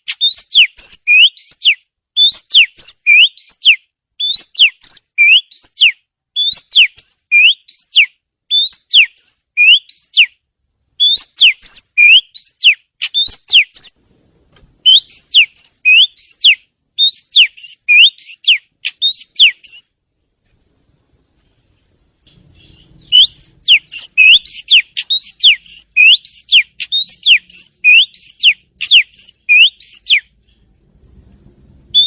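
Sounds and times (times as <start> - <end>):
bird singing whistled notes: 0.1 - 10.4, 11.0 - 14.0, 14.8 - 20.0, 22.3 - 30.7.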